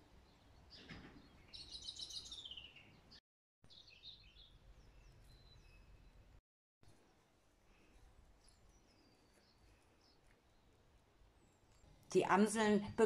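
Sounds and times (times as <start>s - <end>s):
songbirds singing: 0.1s - 6.4s, 7.8s - 12.7s.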